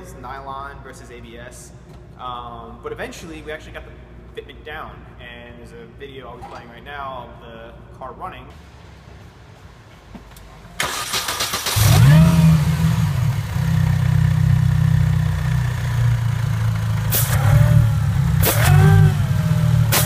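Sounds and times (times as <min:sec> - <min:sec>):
car engine starting and idling: 0:10.3 - 0:20.0
engine throttle blips: 0:10.8 - 0:20.0.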